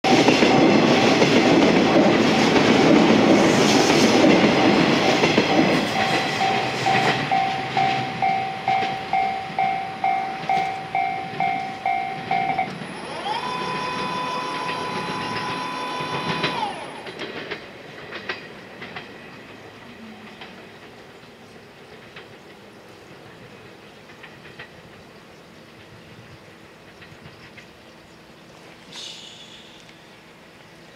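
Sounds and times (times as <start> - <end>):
train rumbling: 0.0 - 30.9
railway warning bell dinging: 4.2 - 20.8
train horn blast: 5.8 - 16.9.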